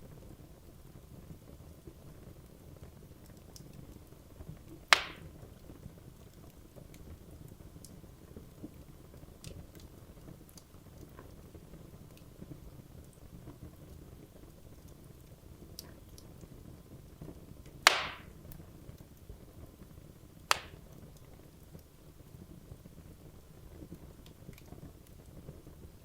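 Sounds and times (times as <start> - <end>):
wood fire crackling: 0.0 - 26.0
loud sharp pop of fire: 4.9 - 5.3, 17.8 - 18.4, 20.5 - 20.8.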